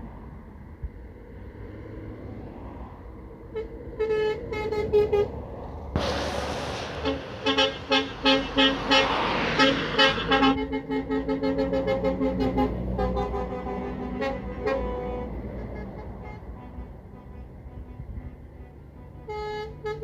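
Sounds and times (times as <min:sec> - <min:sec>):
lorry engines rumbling: 0:00.0 - 0:20.0
truck horns tooting: 0:03.5 - 0:20.0
loud rush of noise: 0:06.0 - 0:10.6.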